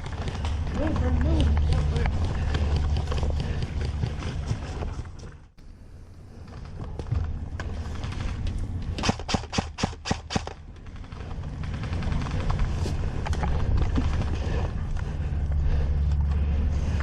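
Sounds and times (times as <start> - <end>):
steady low rumble: 0.0 - 17.0
airsoft gun firing: 9.0 - 12.3.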